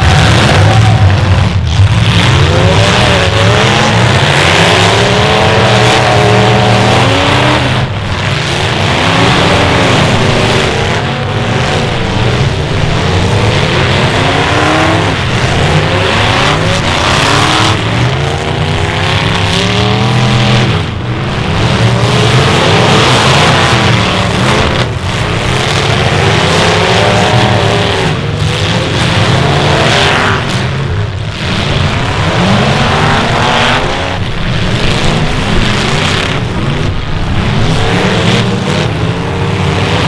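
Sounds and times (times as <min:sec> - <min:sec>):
car engines revving: 0:00.0 - 0:40.0.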